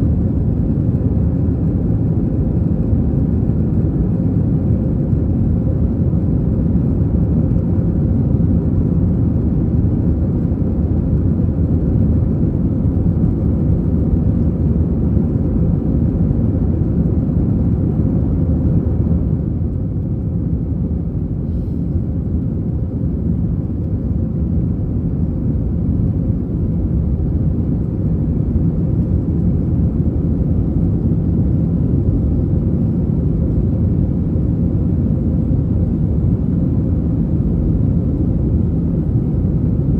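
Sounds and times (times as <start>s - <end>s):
jet engine and airflow rumble: 0.0s - 39.9s.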